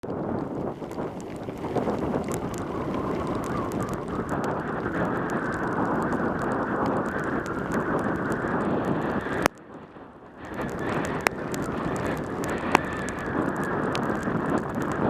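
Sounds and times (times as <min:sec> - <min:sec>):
wind rushing over microphone: 0:00.0 - 0:15.0
sharp clicks: 0:10.4 - 0:15.0.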